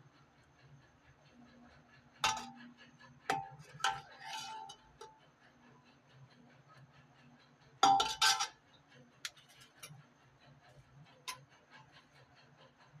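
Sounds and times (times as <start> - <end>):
metal utensils clattering on cookware: 2.2 - 2.6, 3.3 - 5.1, 7.8 - 8.6.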